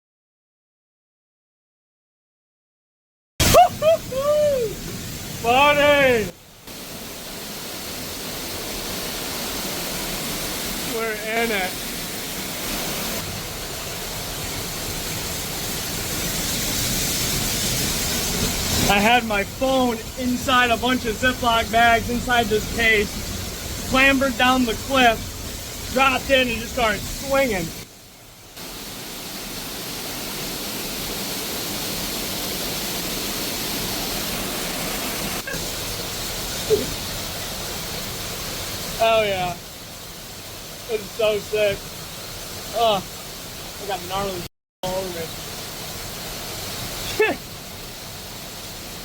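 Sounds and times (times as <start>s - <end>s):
waterfall rushing: 3.4s - 49.0s.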